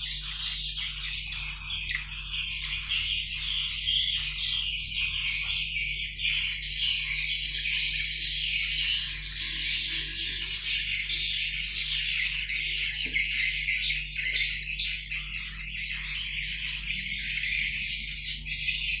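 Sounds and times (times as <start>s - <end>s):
chicks chirping: 0.0s - 19.0s.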